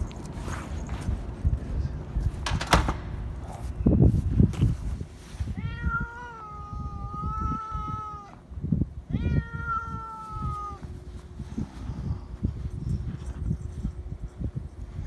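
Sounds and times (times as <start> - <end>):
cat meowing: 5.5 - 8.4, 9.1 - 11.0.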